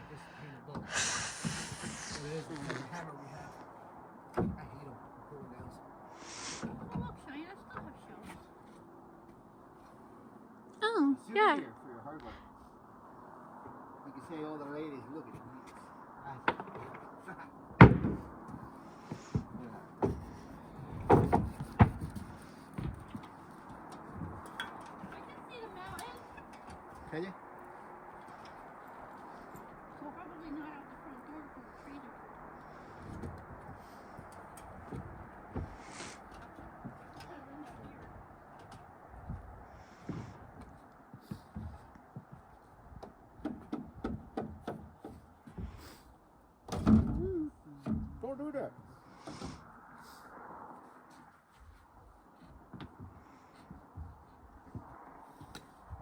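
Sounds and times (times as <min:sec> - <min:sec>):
loud thud: 0:17.8 - 0:18.3
heavy knocks on wood: 0:17.8 - 0:18.6, 0:19.3 - 0:23.2.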